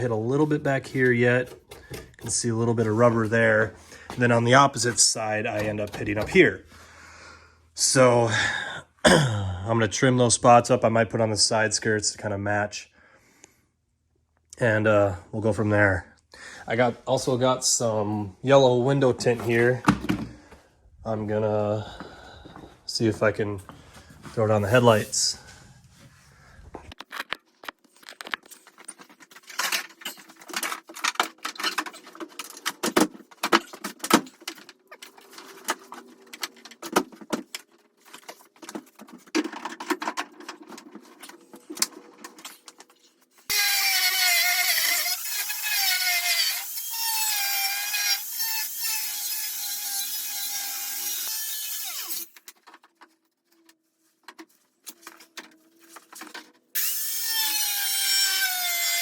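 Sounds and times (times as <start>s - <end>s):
knocks and scrapes: 0.0s - 6.6s, 23.6s - 43.5s
power tool cutting fiberglass: 43.5s - 52.3s, 56.8s - 59.0s.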